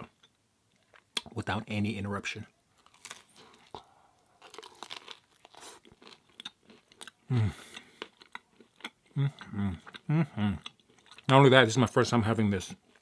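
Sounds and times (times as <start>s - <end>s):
crunching crisp crust: 2.7s - 8.9s.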